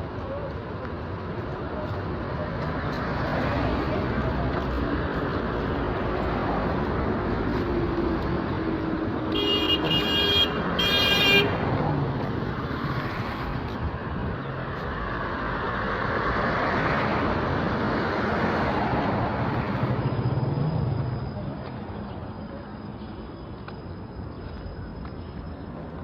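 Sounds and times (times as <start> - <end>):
street traffic noise: 0.0 - 26.0
vehicle horn tooting: 9.3 - 11.6.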